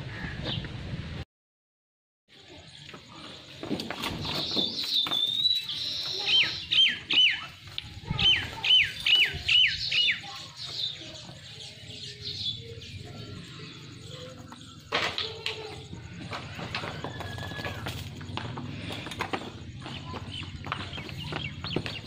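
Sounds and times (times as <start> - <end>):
bird chirping and whistling: 4.3 - 7.5, 8.2 - 10.3.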